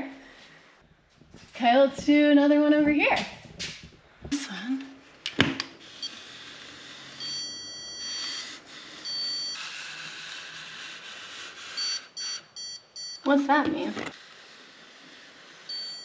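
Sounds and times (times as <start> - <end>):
high electronic beeps: 7.2 - 9.6
stud finder scraping on wall: 13.5 - 16.0.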